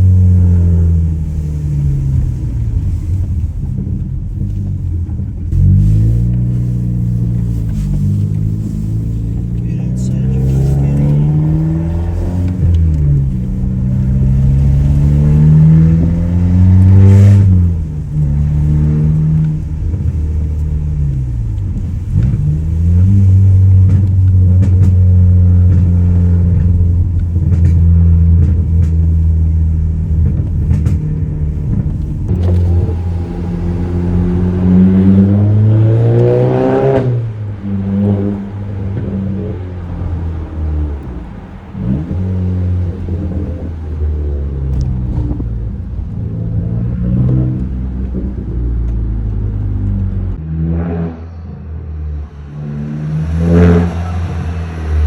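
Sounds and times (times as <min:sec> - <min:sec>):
car exhaust revving: 0:00.0 - 0:55.0.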